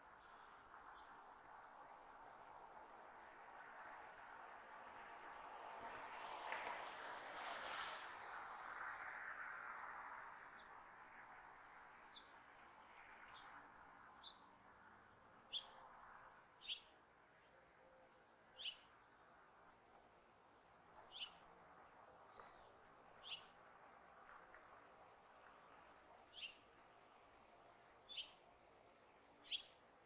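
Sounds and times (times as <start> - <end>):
small bird chirping: 14.2 - 14.4, 15.5 - 15.8, 16.6 - 16.9, 18.6 - 18.9, 21.1 - 21.4, 23.2 - 23.5, 26.3 - 26.6, 28.1 - 28.4, 29.4 - 29.8.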